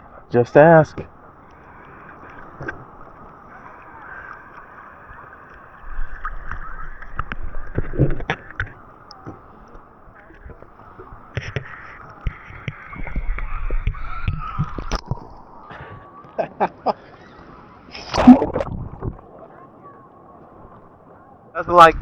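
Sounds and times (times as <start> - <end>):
water sloshing and splashing: 0.0 - 16.4, 17.8 - 22.0
wind rumble on microphone: 2.0 - 16.0, 18.4 - 19.3.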